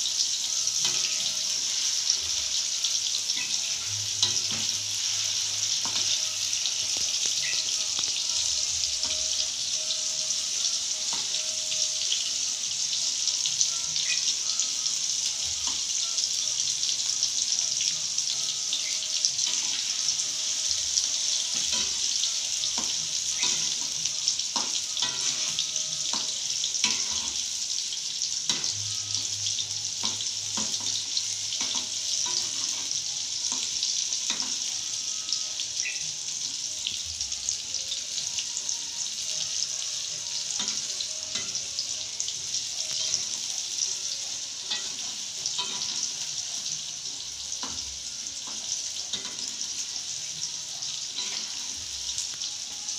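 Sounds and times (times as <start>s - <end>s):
tofu sizzling in a wok: 0.0s - 52.9s
metal spatula scraping a wok: 3.3s - 8.2s, 21.0s - 27.7s, 30.0s - 33.0s, 44.7s - 46.4s, 50.8s - 51.8s.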